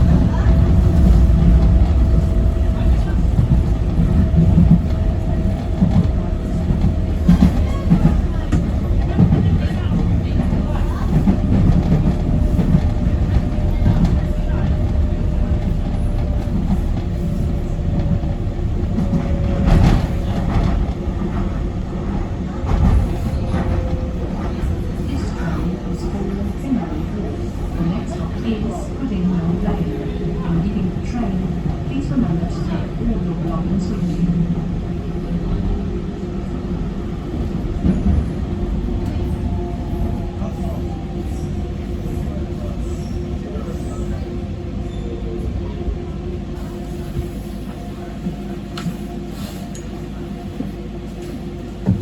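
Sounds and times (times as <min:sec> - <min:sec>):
train jolt: 0:00.0 - 0:34.3
train rumbling on track: 0:00.0 - 0:52.0.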